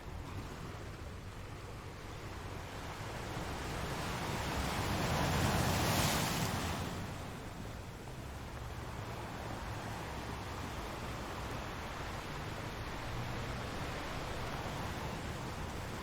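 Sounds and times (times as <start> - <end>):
ocean waves breaking on shore: 0.0 - 16.0
surf hiss and rumble: 0.0 - 16.0.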